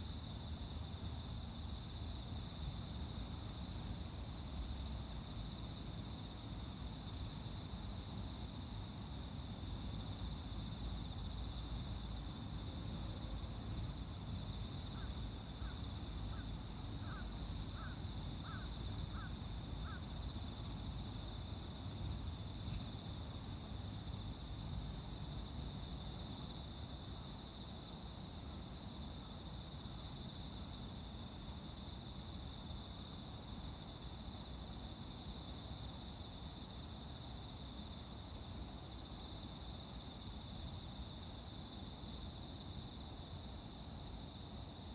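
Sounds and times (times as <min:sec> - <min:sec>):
insects chirring: 0:00.0 - 0:44.9
crow cawing: 0:17.0 - 0:17.2, 0:17.8 - 0:18.6, 0:19.2 - 0:20.0.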